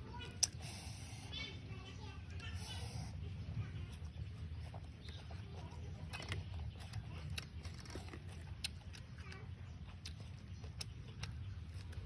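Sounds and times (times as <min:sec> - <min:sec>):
chewing with wet mouth clicks: 0:03.8 - 0:12.0.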